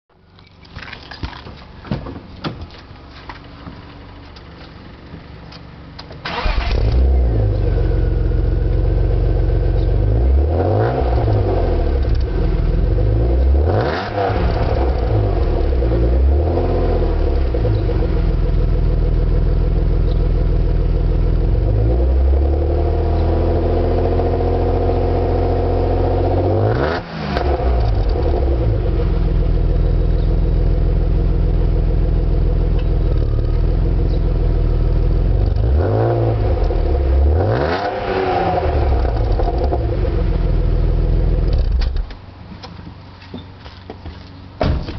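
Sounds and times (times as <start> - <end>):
car engine starting and revving: 6.2 - 42.1.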